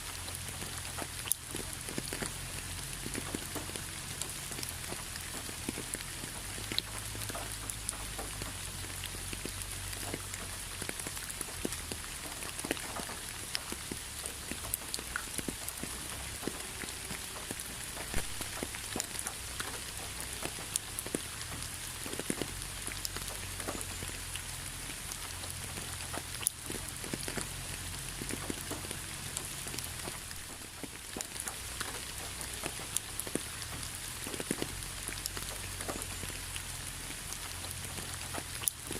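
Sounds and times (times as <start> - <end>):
raindrops pattering on surface: 0.0 - 38.9
steady rain: 0.0 - 38.9.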